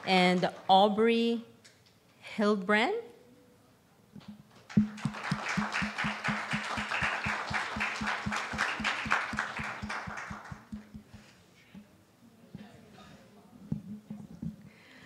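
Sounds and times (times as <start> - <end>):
congregation applauding: 4.6 - 11.2
steady rapid clapping: 4.6 - 11.3.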